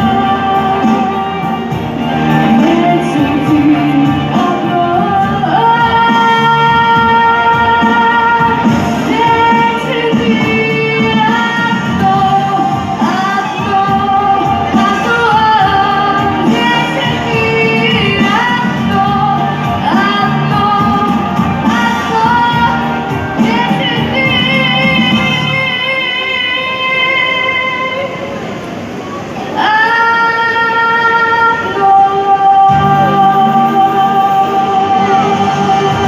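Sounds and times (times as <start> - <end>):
instrumental accompaniment: 0.0 - 26.0
girl singing: 2.4 - 28.3, 29.6 - 36.0.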